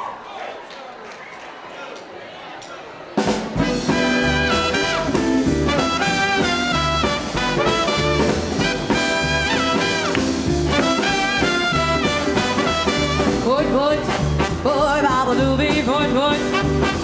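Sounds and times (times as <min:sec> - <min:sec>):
bass and drums: 0:03.2 - 0:17.0
horn section riffs: 0:03.3 - 0:14.9, 0:16.4 - 0:17.0.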